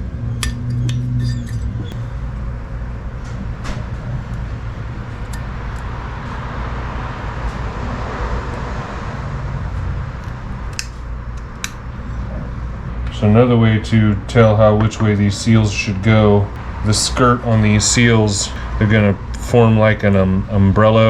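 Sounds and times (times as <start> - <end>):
low hum and hiss: 0.0 - 21.0
metal parts clicking: 0.4 - 1.9.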